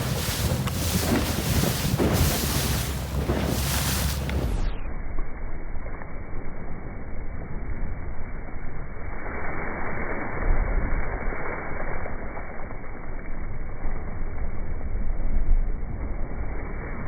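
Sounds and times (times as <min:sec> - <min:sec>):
water rushing and splashing: 0:00.0 - 0:04.8
wind noise on microphone: 0:00.0 - 0:17.0.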